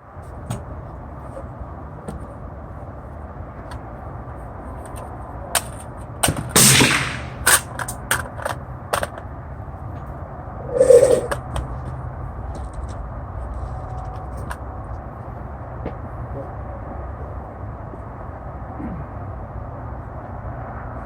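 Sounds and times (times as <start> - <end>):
steady background hum: 0.2 - 20.2
gunshots: 6.6 - 7.7.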